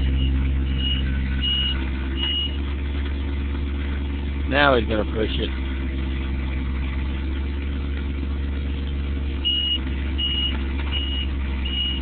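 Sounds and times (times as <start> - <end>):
high warning alarm beeping: 0.0 - 2.6, 9.4 - 12.0
excavator engine running: 0.0 - 12.0.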